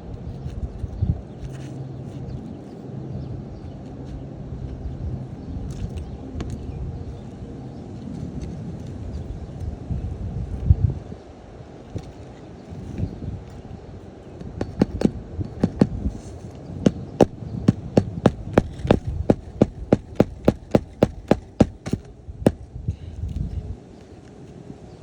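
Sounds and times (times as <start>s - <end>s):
wind rumble on microphone: 0.0s - 25.0s
hammer nailing roof shingles: 14.4s - 22.6s.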